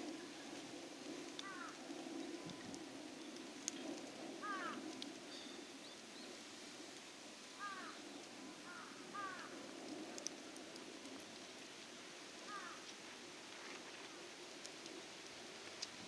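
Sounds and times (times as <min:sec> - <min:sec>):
faint clicks: 0:08.7 - 0:11.5, 0:15.6 - 0:16.0.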